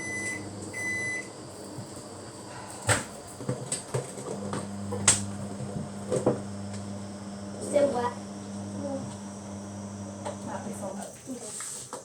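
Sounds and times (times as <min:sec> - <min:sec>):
microwave electronic beep: 0:00.0 - 0:01.3
microwave oven low hum: 0:00.0 - 0:11.0.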